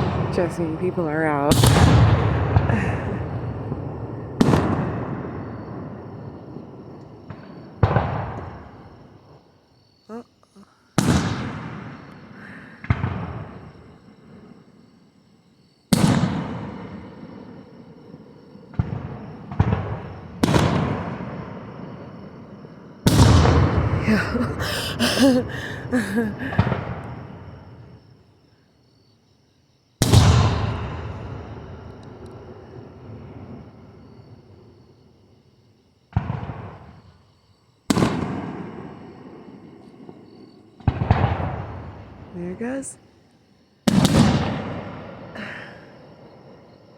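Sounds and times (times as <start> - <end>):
fireworks bursting with echo: 0.0 - 8.9, 11.0 - 14.4, 15.9 - 17.7, 18.7 - 22.4, 23.0 - 24.0, 26.3 - 27.4, 30.0 - 33.7, 36.1 - 37.1, 37.9 - 40.2, 40.8 - 43.0, 43.9 - 45.4
firework shells bursting: 43.9 - 45.0.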